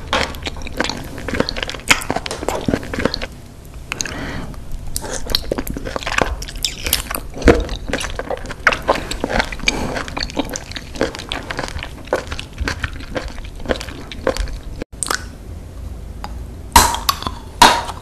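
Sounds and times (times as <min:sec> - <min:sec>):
wet chewing and slurping: 0:00.0 - 0:04.2, 0:04.8 - 0:15.2.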